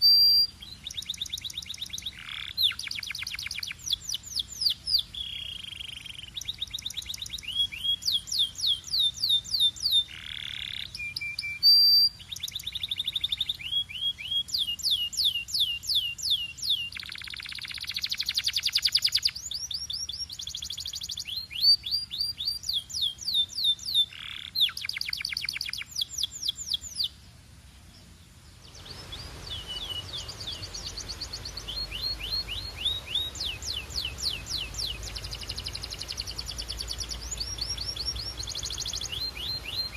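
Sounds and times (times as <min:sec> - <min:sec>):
canary singing trills: 0:00.0 - 0:27.2, 0:28.5 - 0:39.9
steady hiss: 0:24.1 - 0:39.9.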